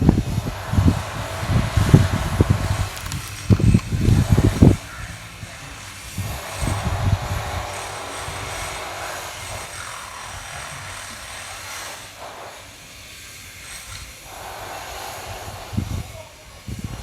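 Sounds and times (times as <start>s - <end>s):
strong wind blowing: 0.0s - 9.6s, 14.9s - 17.0s.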